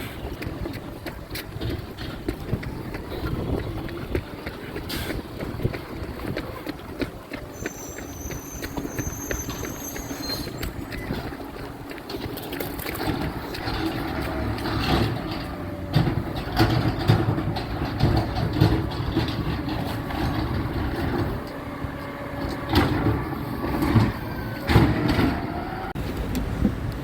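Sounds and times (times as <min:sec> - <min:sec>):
garbage truck engine running: 0:00.0 - 0:26.9
metallic clanks and knocks: 0:12.1 - 0:21.6.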